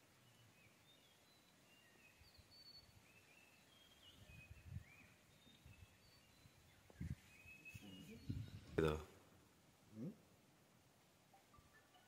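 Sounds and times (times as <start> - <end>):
faint bird chirps and whistles: 0.2 - 8.8, 11.3 - 12.0.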